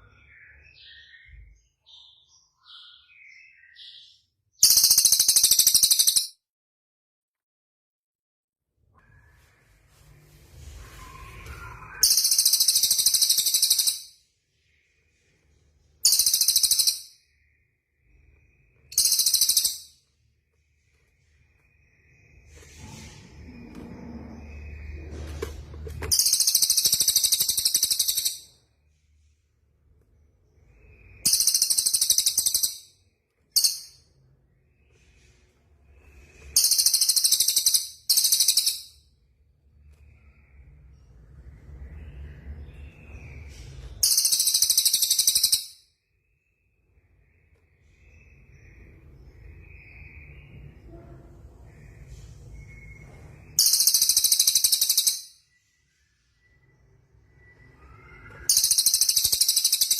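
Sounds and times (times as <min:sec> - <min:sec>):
soft bird chirps: 0:00.0 - 0:06.4, 0:08.8 - 0:59.9
songbird high-pitched trills: 0:11.1 - 0:14.2, 0:16.0 - 0:17.3, 0:18.9 - 0:20.0, 0:30.7 - 0:34.2, 0:36.2 - 0:39.0, 0:44.0 - 0:45.9, 0:51.7 - 0:59.9
songbird trilling: 0:18.9 - 0:19.8, 0:53.6 - 0:55.2.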